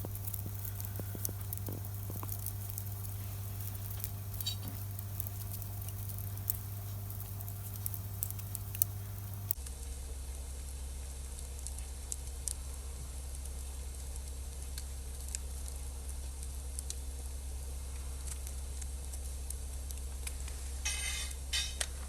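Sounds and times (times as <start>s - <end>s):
fire hissing burst: 0.0s - 9.6s
low rumble: 0.0s - 9.6s
campfire crackling and popping: 0.0s - 9.9s, 11.3s - 22.0s.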